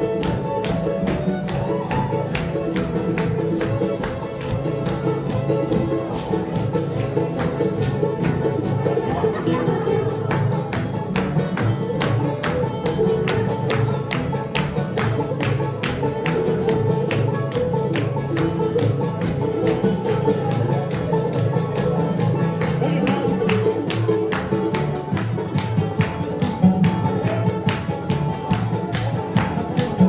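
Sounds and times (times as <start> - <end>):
bluegrass band playing: 0.0 - 30.0.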